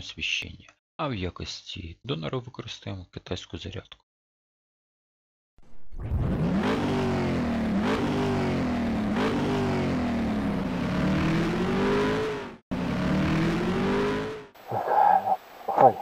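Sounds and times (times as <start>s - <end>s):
car engine revving hard: 6.1s - 14.6s.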